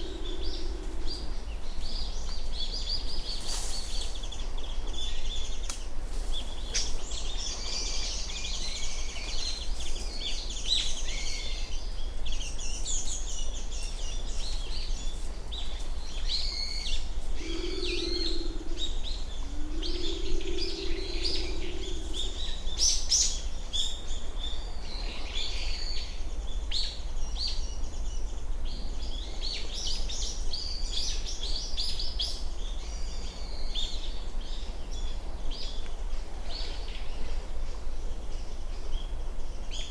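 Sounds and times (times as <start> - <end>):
pigeon purring calls: 0.0 - 1.4, 17.4 - 22.6
small birds chirping: 0.0 - 35.9.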